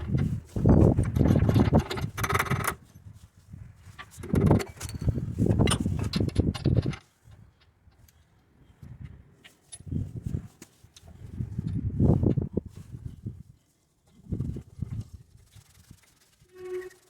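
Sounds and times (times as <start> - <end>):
harsh metal scrape: 15.8 - 17.0.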